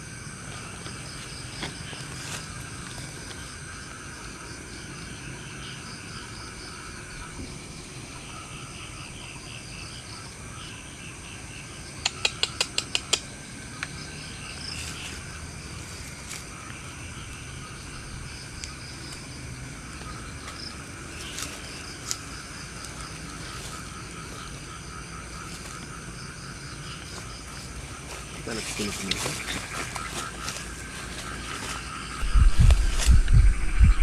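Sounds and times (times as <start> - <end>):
crickets chirping: 0.0 - 34.0
sharp clicks: 12.0 - 13.9.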